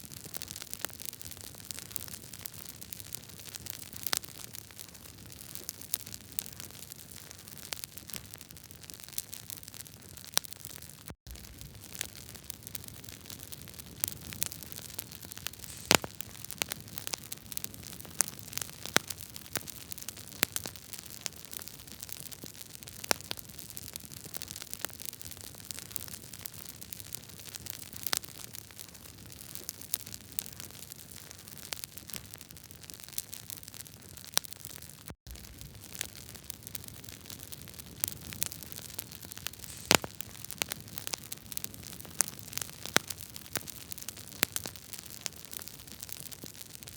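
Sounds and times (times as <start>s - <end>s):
wood fire crackling: 0.0s - 46.9s.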